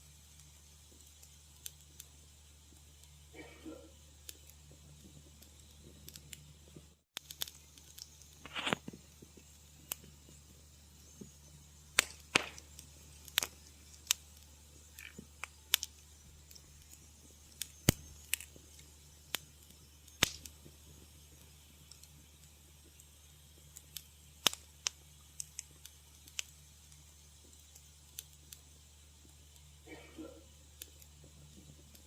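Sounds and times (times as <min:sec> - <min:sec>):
wood fire crackling: 0:00.0 - 0:32.0
long pop with hiss: 0:11.2 - 0:14.2, 0:17.5 - 0:18.4, 0:20.1 - 0:20.6.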